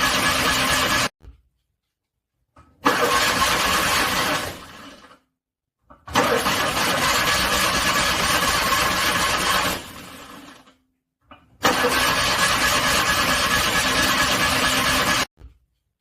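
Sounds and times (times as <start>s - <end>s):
car starter cranking engine: 2.8s - 5.0s, 6.1s - 10.1s, 11.6s - 15.3s.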